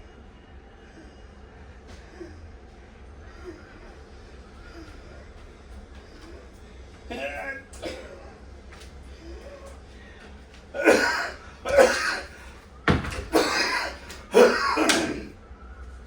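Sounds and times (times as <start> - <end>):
person coughing: 7.1 - 8.4, 10.8 - 12.4, 13.2 - 15.3.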